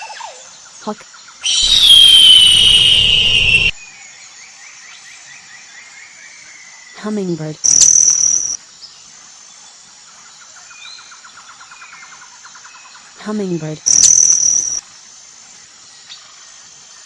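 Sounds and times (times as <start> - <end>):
insect-like high trill: 1.4 - 3.8, 7.6 - 8.6, 13.9 - 14.8
loud high chirp: 1.4 - 3.9, 7.7 - 8.6, 13.9 - 14.8.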